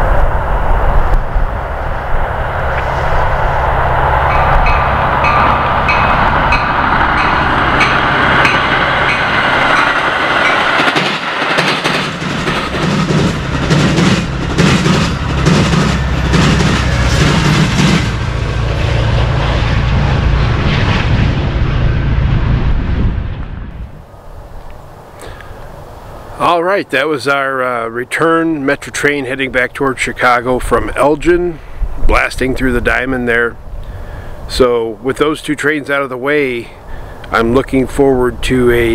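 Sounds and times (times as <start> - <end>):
train rumble: 0.0 - 26.6
train wheels banging over crossing: 4.1 - 19.1
crossing bell dinging: 4.2 - 11.0.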